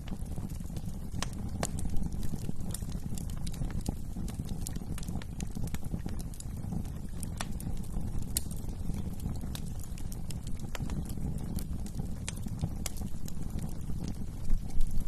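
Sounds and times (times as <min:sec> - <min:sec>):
low rumble of flames: 0:00.0 - 0:15.0
wood fire crackling: 0:00.0 - 0:15.0.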